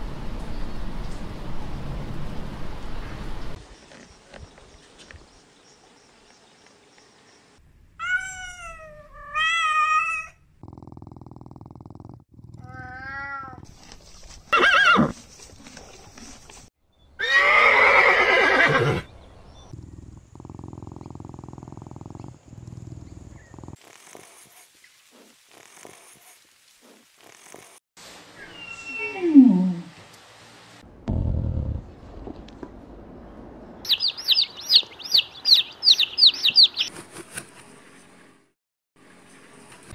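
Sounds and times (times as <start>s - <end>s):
horse whinnying: 14.6s - 15.2s, 17.2s - 19.1s
wavering animal calls: 28.4s - 29.9s, 33.9s - 36.9s.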